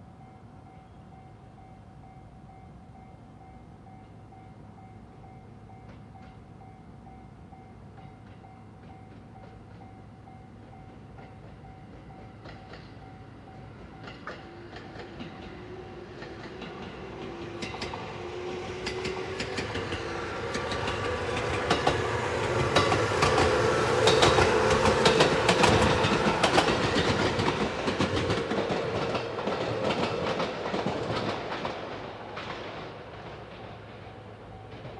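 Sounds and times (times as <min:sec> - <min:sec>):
wheels clicking over rail joints: 0:13.8 - 0:34.9.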